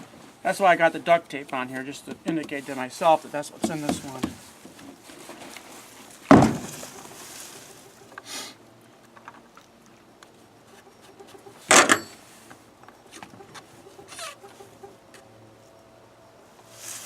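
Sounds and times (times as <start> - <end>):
fuel can and chainsaw knocks: 6.3 - 6.8.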